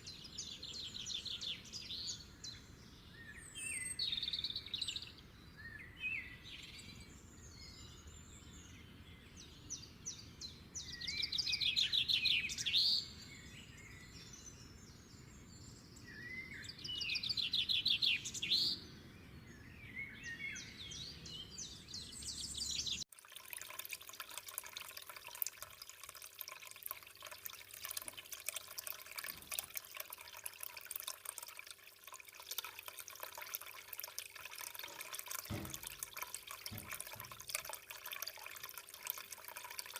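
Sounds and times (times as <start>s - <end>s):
songbirds chirping and trilling: 0.0s - 23.1s, 24.7s - 39.9s
running water trickling: 22.7s - 39.9s.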